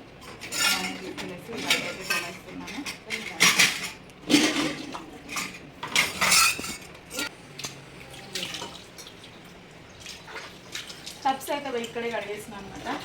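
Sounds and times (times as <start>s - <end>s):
dishes and cutlery clattering: 0.3s - 7.3s
water splashing: 8.0s - 13.0s.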